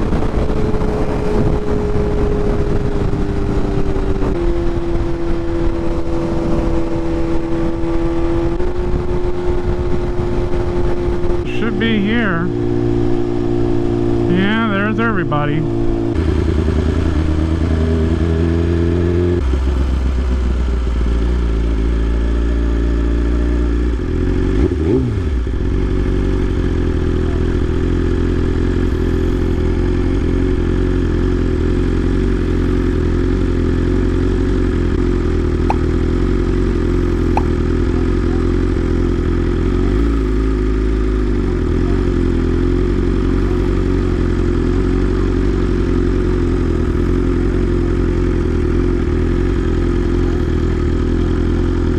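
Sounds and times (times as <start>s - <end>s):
motorcycle engine idling: 19.4s - 51.9s
throttle blip: 35.7s - 35.9s, 37.3s - 37.6s.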